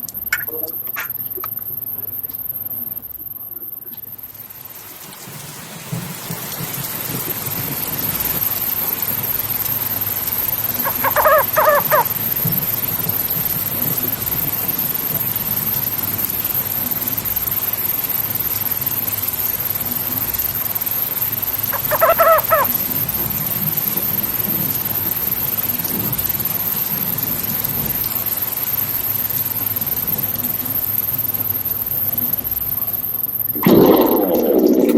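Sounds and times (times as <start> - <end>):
crow cawing: 10.8 - 12.1, 21.8 - 22.7.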